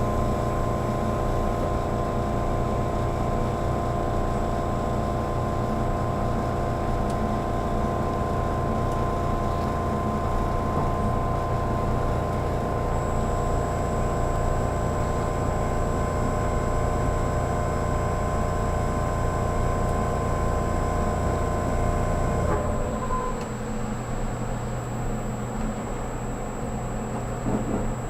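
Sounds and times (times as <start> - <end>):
electrical whine tones: 7.7 - 28.0.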